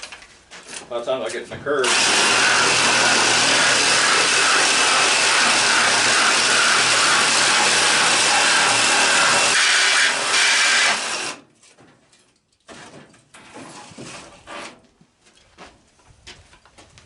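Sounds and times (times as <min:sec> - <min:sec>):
power tool running: 0:01.8 - 0:11.4.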